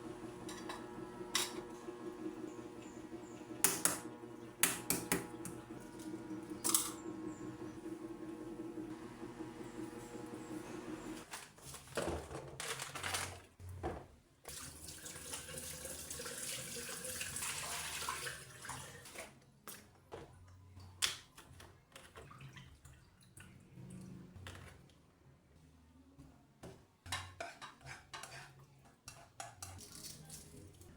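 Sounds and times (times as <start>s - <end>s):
tap water running into sink: 0.1s - 11.3s, 14.5s - 19.3s.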